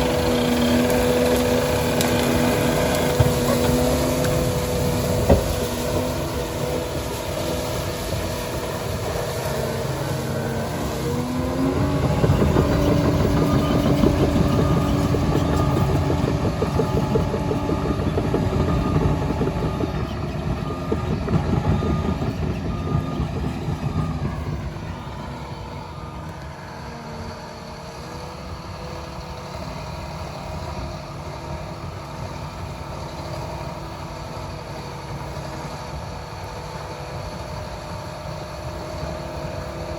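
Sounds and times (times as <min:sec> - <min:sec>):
bulldozer diesel engine revving: 0:00.0 - 0:39.9.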